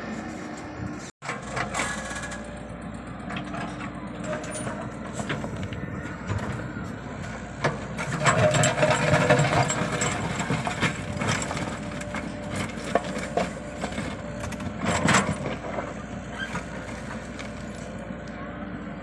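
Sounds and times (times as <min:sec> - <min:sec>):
excavator engine clattering: 0:00.0 - 0:19.0.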